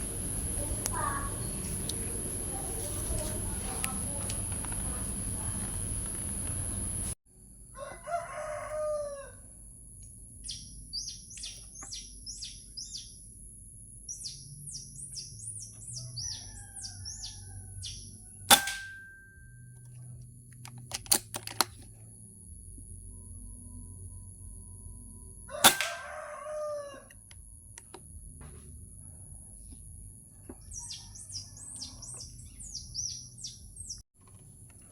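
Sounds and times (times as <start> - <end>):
rooster crowing: 7.7 - 9.6, 16.0 - 19.2, 25.4 - 27.2, 30.7 - 32.3
small bird chirping: 10.4 - 13.3, 14.0 - 18.3, 30.6 - 34.0
air rifle shot: 18.5 - 19.1, 25.6 - 26.1
sharp clicks: 20.6 - 21.8.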